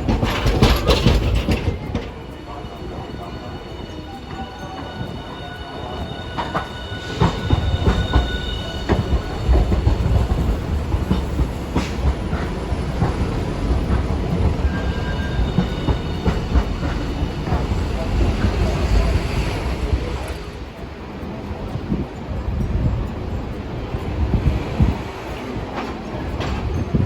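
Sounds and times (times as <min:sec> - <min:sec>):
streetcar running rumble: 0:00.0 - 0:27.0
wheels clacking on rail joints: 0:00.0 - 0:27.0.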